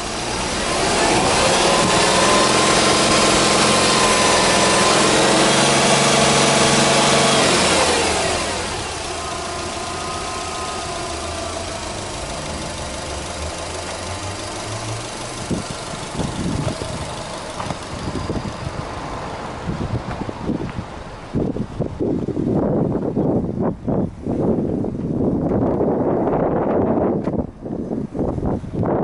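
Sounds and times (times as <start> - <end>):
car engine revving and idling: 0.0 - 23.0
wind buffeting microphone: 0.0 - 29.0.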